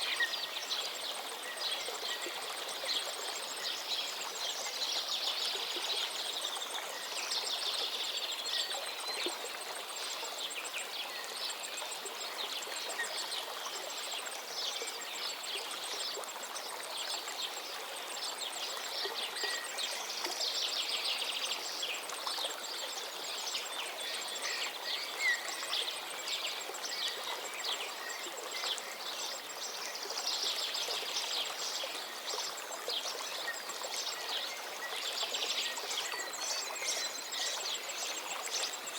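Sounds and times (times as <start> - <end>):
river flowing: 0.0 - 38.9.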